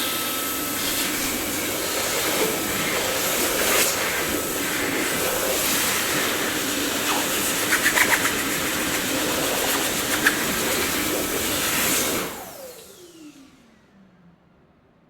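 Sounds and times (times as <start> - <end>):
vacuum cleaner whine: 0.0 - 14.9.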